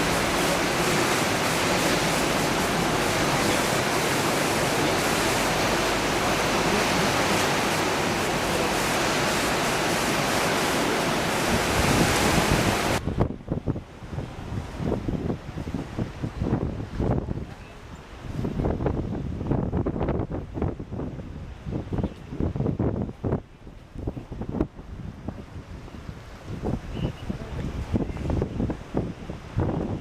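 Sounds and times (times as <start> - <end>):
river water rushing: 0.0 - 13.0
wind rumbling on microphone: 0.0 - 30.0.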